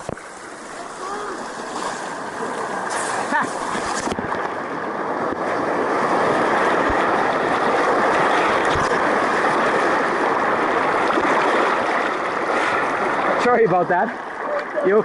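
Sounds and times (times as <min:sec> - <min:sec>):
rushing whitewater: 0:00.0 - 0:15.0.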